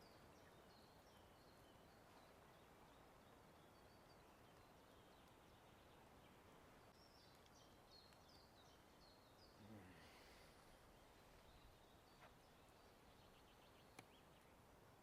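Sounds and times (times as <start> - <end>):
songbirds chirping: 0.0 - 15.0
flowing river hiss: 9.7 - 11.3.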